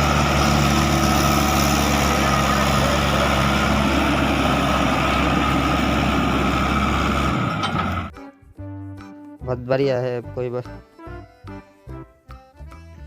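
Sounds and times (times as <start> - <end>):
truck engine idling: 0.0 - 8.1.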